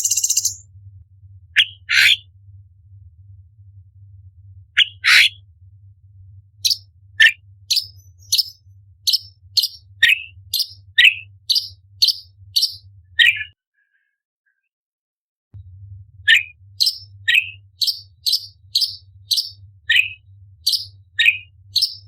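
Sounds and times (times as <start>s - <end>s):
bird singing: 0.0s - 0.6s, 6.6s - 13.6s, 16.3s - 22.0s
faint low hum: 0.0s - 13.3s, 15.6s - 22.0s.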